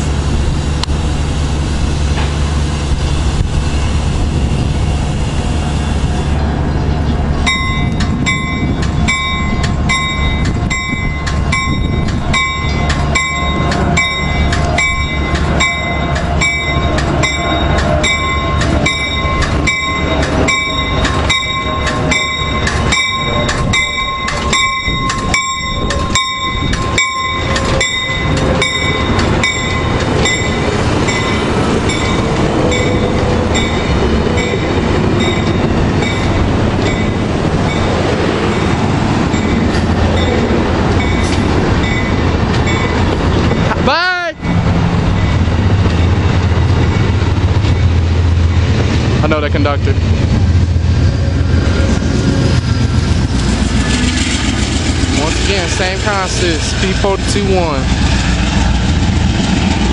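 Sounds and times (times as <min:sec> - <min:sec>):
passenger train rumbling: 0:00.0 - 0:59.9
bell ringing: 0:07.5 - 0:37.2.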